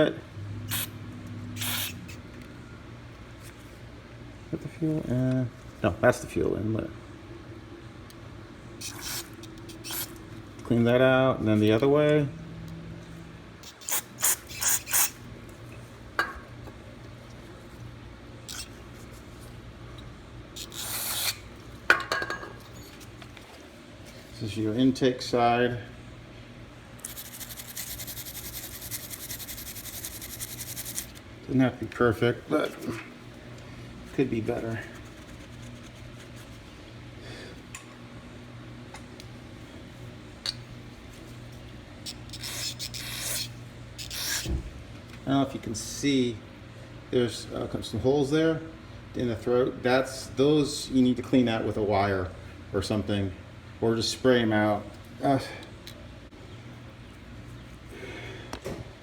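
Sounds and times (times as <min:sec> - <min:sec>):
steady low hum: 0:00.0 - 0:59.0
aerosol spray hissing: 0:01.6 - 0:02.0, 0:27.1 - 0:31.1.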